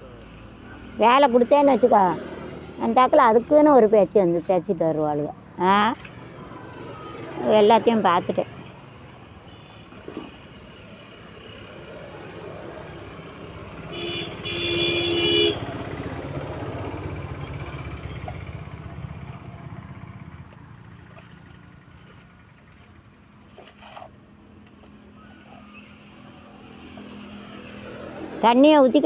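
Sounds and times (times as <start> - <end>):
vehicle passing: 0.0 - 9.4, 10.3 - 23.2, 23.9 - 29.0
two-tone horn toot: 13.9 - 15.6.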